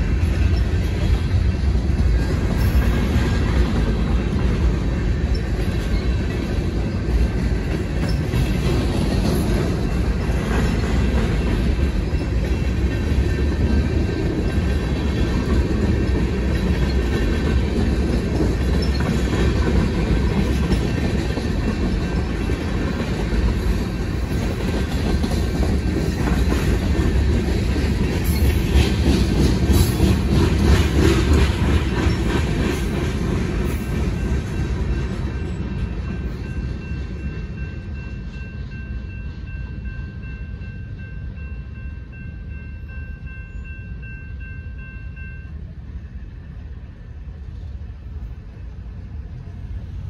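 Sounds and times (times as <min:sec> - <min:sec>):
wheels clacking over rail joints: 0:00.0 - 0:37.2
train wheels rumbling on rails: 0:00.0 - 0:50.0.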